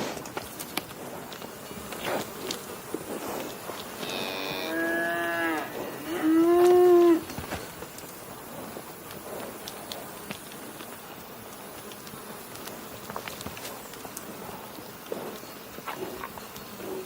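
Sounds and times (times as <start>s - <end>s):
cow mooing: 4.0s - 7.2s.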